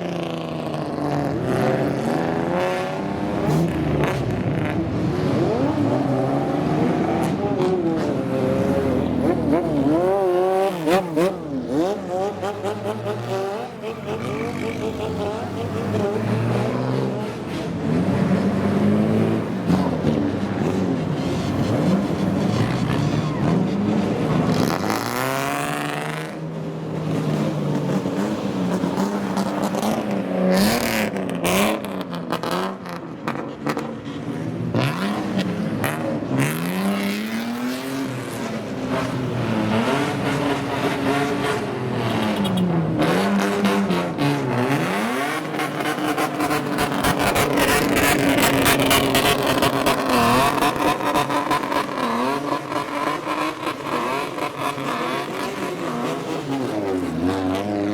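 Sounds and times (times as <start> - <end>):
car engine revving: 34.7 - 57.9.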